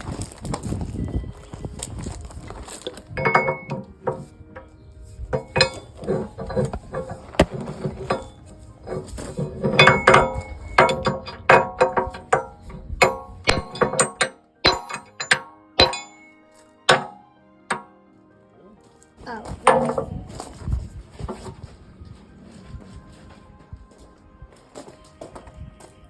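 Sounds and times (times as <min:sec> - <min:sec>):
hammer striking steel: 0:03.2 - 0:04.2, 0:05.4 - 0:08.4, 0:09.6 - 0:17.9, 0:19.6 - 0:20.1.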